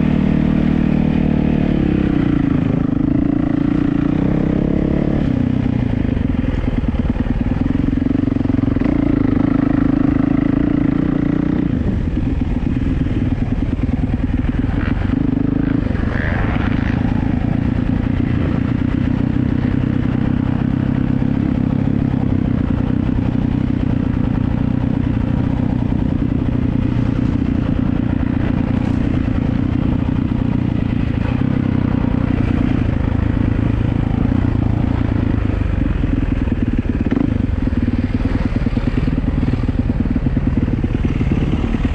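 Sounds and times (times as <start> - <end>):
motocross bike engine revving: 14.4 - 21.5.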